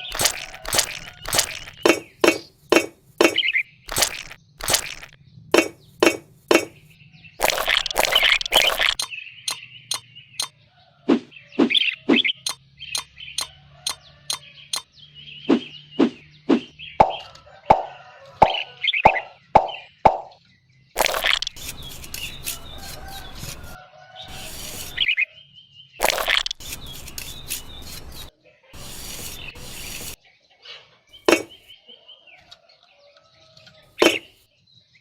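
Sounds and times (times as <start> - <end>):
clicks and taps of small bricks: 0.0 - 6.8, 7.4 - 10.5.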